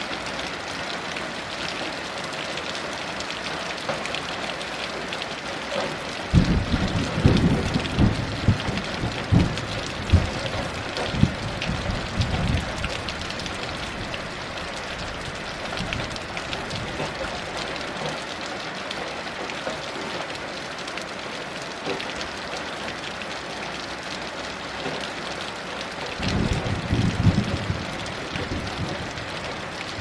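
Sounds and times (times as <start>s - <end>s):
heavy rain: 0.0s - 30.0s
distant thunder rumbling: 6.3s - 13.9s, 26.2s - 30.0s.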